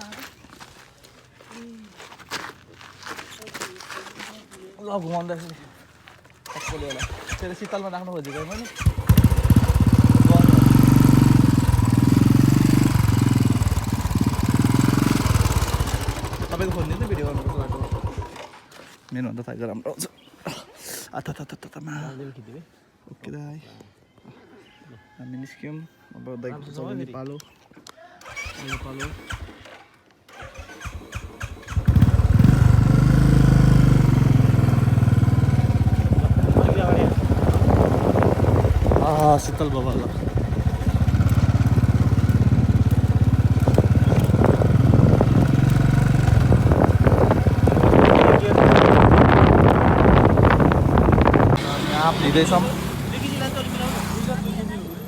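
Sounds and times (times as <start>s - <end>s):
vehicle engine idling: 8.8s - 18.4s, 31.0s - 55.0s.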